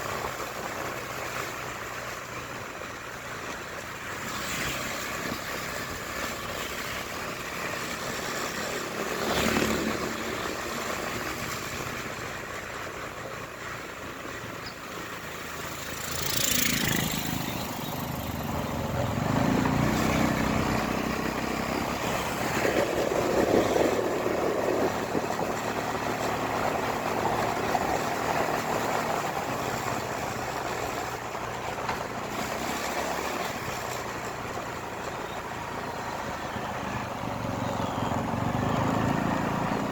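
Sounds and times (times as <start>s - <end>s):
motorcycle engine: 0.0s - 39.9s
wind and road noise: 0.0s - 39.9s.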